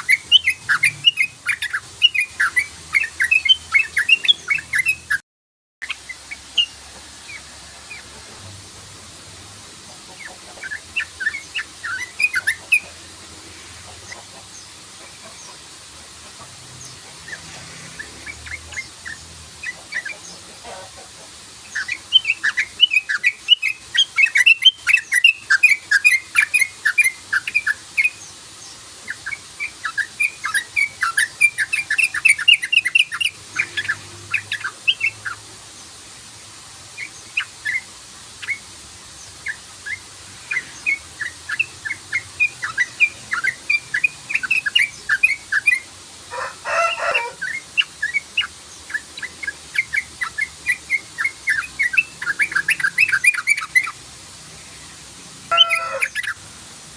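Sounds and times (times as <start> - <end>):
bird chattering calls: 0.0 - 5.2, 10.1 - 13.0, 16.2 - 28.2, 55.5 - 56.4.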